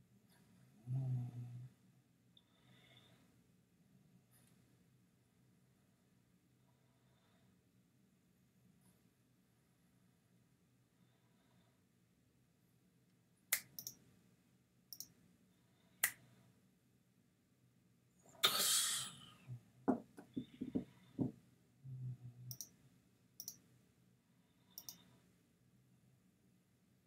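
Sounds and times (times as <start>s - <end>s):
computer mouse clicks: 13.5s - 14.0s, 14.9s - 15.2s, 22.5s - 22.8s, 23.4s - 23.6s, 24.7s - 25.2s.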